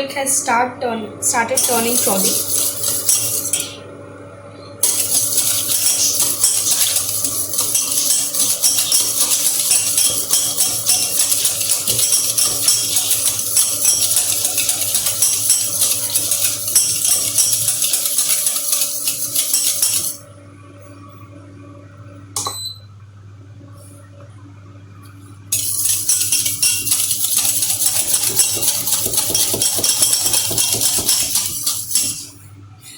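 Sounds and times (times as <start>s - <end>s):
whisk rattling against a pan: 1.6s - 3.7s, 4.8s - 20.2s, 25.6s - 32.4s.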